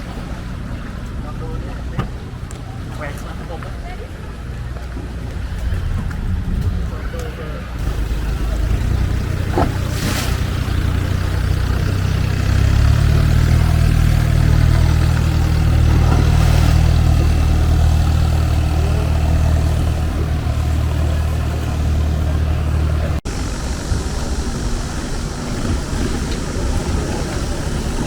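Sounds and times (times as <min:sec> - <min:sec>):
boat engine running: 0:00.0 - 0:28.0
wind and water hiss: 0:00.0 - 0:28.0.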